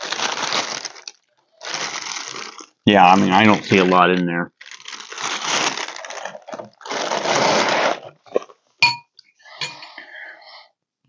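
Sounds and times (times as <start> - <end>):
cereal flakes rustling in plastic: 0.0 - 8.1
spoon clinking against bowl: 8.8 - 9.9.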